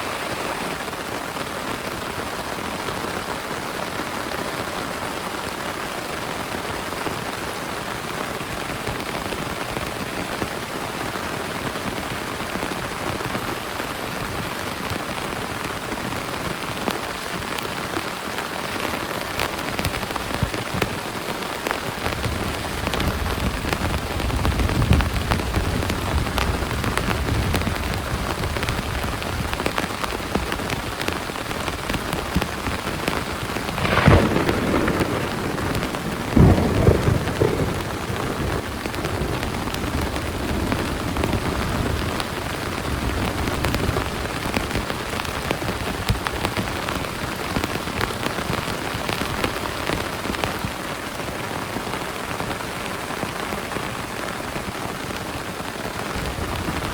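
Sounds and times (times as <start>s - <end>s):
heavy rain falling: 0.0s - 56.9s
low thunder rumble: 33.3s - 44.9s.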